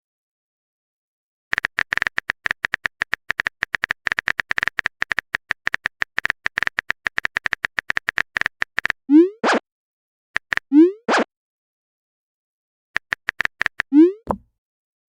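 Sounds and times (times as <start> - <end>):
keyboard typing clicks: 1.5 - 9.0, 13.0 - 14.5.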